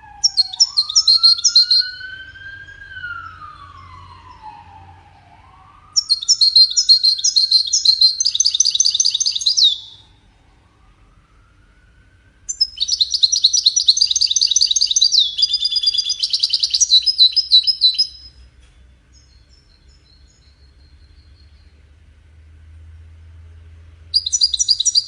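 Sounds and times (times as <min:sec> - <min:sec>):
goldfinch twittering song: 0:00.2 - 0:02.2, 0:06.0 - 0:10.0, 0:12.5 - 0:18.4, 0:24.2 - 0:25.0.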